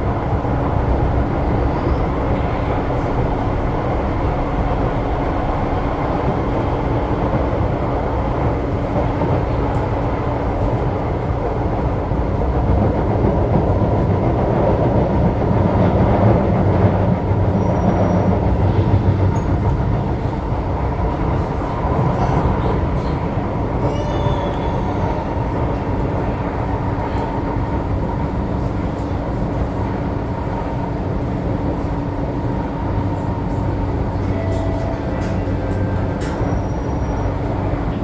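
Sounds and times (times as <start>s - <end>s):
train wheels rumbling on track: 0.0s - 38.0s.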